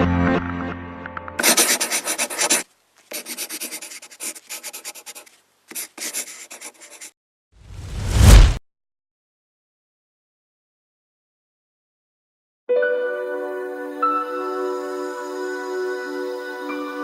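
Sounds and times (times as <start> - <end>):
brush scratching a surface: 1.4 - 7.2.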